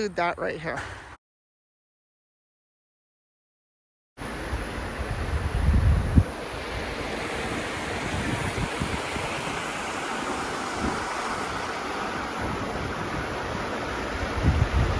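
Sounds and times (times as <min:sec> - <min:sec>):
river rushing: 0:04.2 - 0:14.9
wind buffeting microphone: 0:04.4 - 0:14.9.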